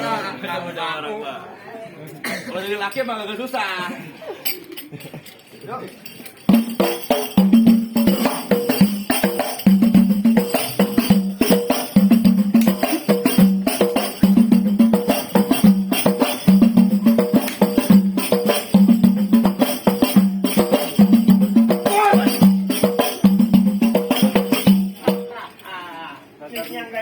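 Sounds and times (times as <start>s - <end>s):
percussion music with jingling: 4.4s - 27.0s.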